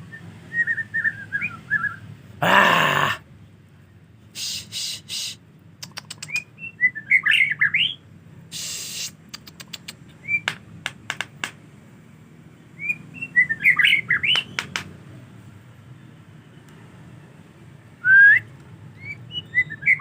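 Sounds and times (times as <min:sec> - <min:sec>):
bird singing whistled notes: 0:00.0 - 0:02.1, 0:06.0 - 0:08.0, 0:10.2 - 0:10.5, 0:12.7 - 0:14.6, 0:18.0 - 0:20.0
short hiss: 0:04.4 - 0:05.4, 0:08.5 - 0:09.2
sharp clicks: 0:05.8 - 0:06.4, 0:09.3 - 0:11.6, 0:14.3 - 0:14.9.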